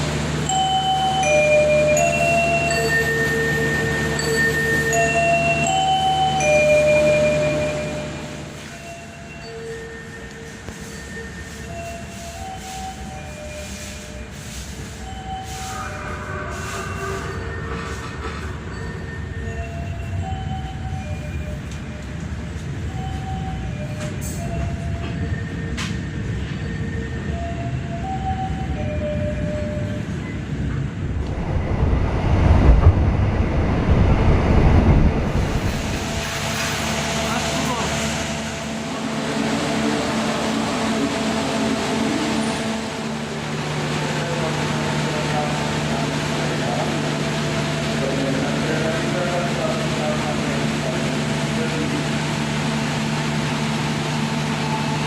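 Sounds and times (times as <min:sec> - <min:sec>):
train wheels rumbling on rails: 0:00.0 - 0:55.0
low engine hum: 0:30.9 - 0:55.0
lower hum: 0:31.0 - 0:36.7.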